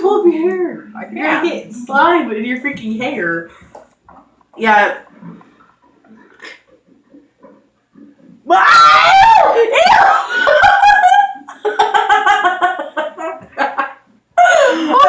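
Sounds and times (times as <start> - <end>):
high-pitched shrieking: 8.5 - 10.3
choppy laughter: 10.1 - 15.0.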